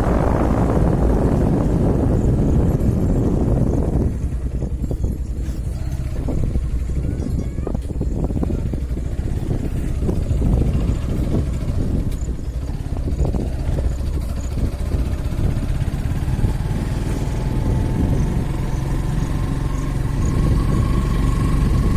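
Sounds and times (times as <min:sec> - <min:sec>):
vehicle engine rumble: 0:00.0 - 0:21.9.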